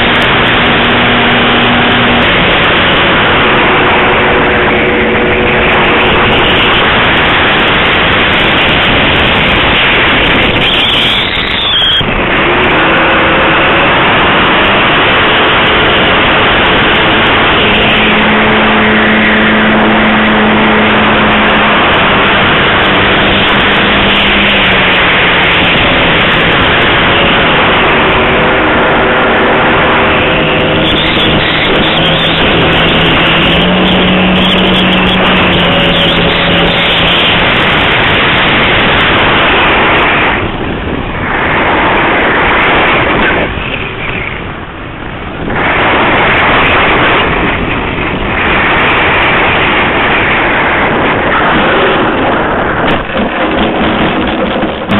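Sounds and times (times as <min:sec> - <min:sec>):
electric motor and propeller whine: 0:00.0 - 0:54.9
heavy wind rush: 0:00.0 - 0:54.9.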